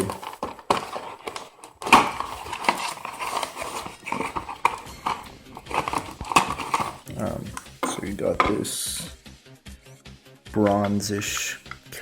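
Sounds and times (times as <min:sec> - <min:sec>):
packaging rustling and crinkling: 0:00.0 - 0:08.5.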